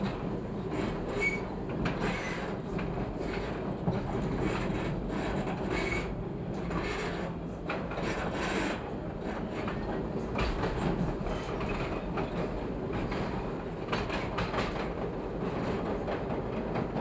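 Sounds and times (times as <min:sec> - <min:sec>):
train wheels rumbling on rails: 0:00.0 - 0:17.0
train wheel squeals: 0:00.7 - 0:02.6, 0:04.4 - 0:07.3, 0:07.9 - 0:10.0, 0:10.8 - 0:13.3.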